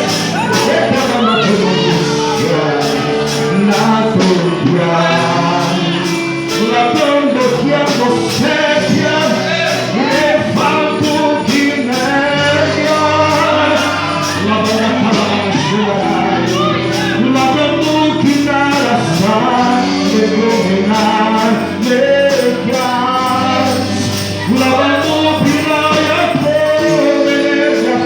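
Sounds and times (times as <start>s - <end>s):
band playing gospel music: 0.0s - 28.0s
high percussion strikes: 0.0s - 28.0s
keyboard chords: 0.0s - 28.0s
man singing: 0.0s - 28.0s.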